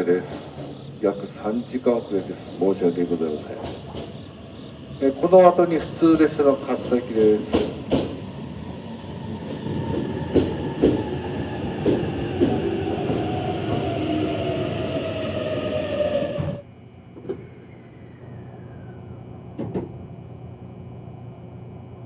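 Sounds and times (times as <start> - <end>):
wheels clacking over rail joints: 7.4 - 8.2
train motors whining down: 11.8 - 21.9.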